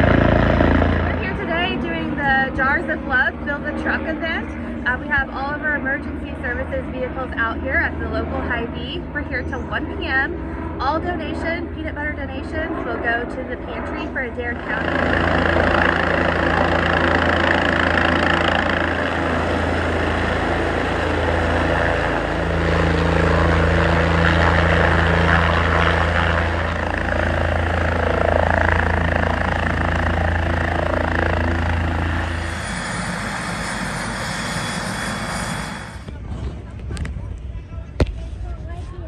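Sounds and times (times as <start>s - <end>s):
large vehicle engine humming: 13.4s - 36.5s.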